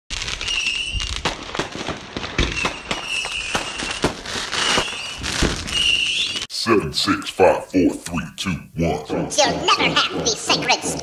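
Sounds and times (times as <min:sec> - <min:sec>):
fireworks bangs and cracks: 0:00.1 - 0:06.5
fireworks whistling: 0:00.1 - 0:06.5.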